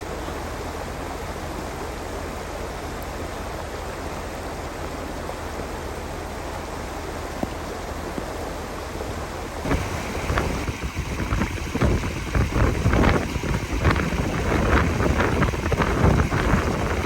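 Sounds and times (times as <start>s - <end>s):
rain falling: 9.6s - 17.0s.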